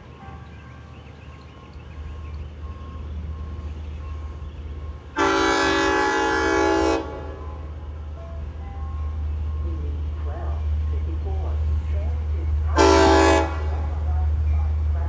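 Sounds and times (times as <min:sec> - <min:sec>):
train horn blast: 0:05.1 - 0:07.9, 0:12.7 - 0:14.1.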